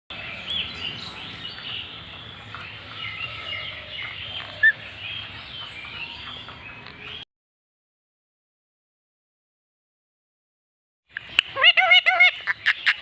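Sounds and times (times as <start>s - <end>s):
parrot chirping: 11.2s - 13.0s
loud parrot call: 11.5s - 13.0s.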